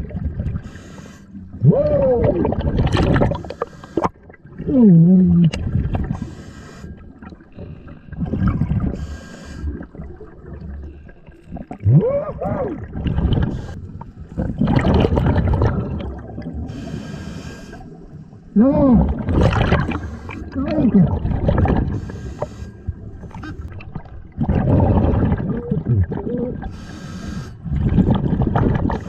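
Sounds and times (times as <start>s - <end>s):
exhaled breath bubbles gurgling: 0.0s - 29.0s
muffled voice underwater: 1.5s - 3.0s, 4.6s - 5.8s, 11.8s - 13.6s, 18.5s - 21.8s, 24.4s - 26.8s.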